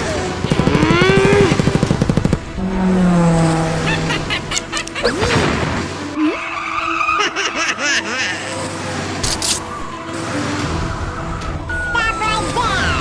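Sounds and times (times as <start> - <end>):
car engine revving: 0.3 - 6.2
tyres skidding and squealing: 2.5 - 13.0.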